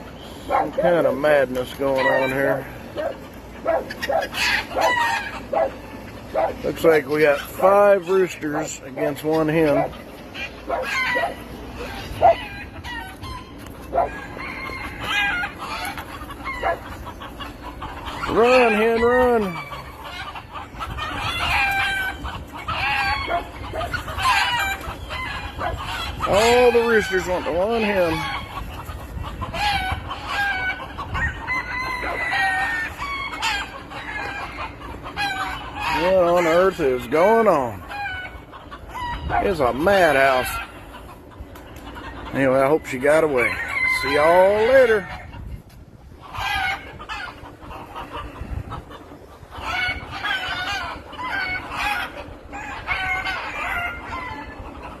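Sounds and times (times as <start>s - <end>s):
chickens clucking and squawking: 0.0s - 55.0s
long held chicken call: 2.0s - 6.6s, 10.3s - 27.5s, 28.1s - 36.6s, 46.2s - 55.0s.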